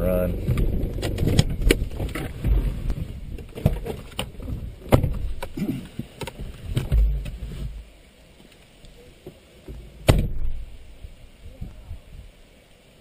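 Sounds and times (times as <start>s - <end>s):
vehicle body rattling over rough road: 0.0s - 7.8s
low vehicle rumble: 0.0s - 8.0s.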